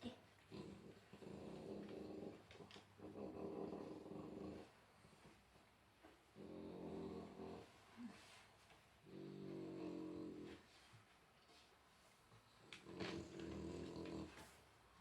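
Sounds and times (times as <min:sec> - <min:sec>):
dog making low drawn-out sounds: 0:00.0 - 0:11.0.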